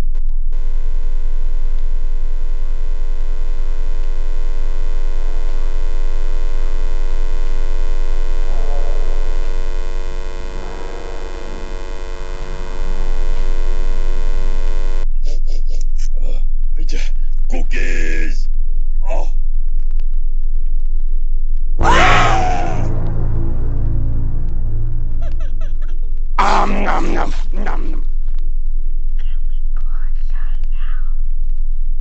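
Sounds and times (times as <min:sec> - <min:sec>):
deep hum: 0:00.1 - 0:15.2, 0:21.8 - 0:29.2
electric buzzing drone: 0:00.6 - 0:15.0, 0:21.8 - 0:27.8.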